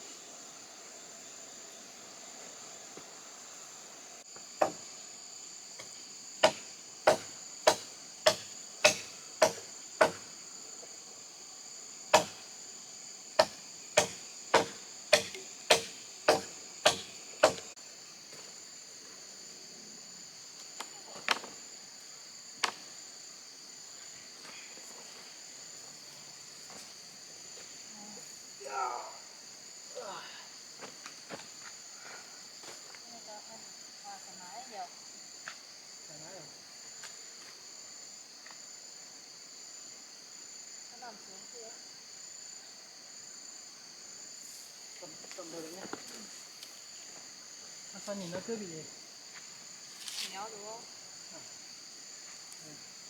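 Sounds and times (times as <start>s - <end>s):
insects droning: 0.0s - 53.0s
hand tool striking wood: 4.6s - 4.8s, 6.4s - 10.3s, 12.1s - 12.4s, 13.4s - 17.7s.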